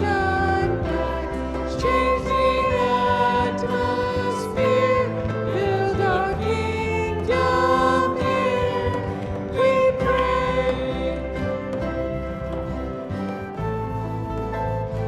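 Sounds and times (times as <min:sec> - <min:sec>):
voices singing hymn: 0:00.0 - 0:12.6
musical accompaniment: 0:00.0 - 0:15.0.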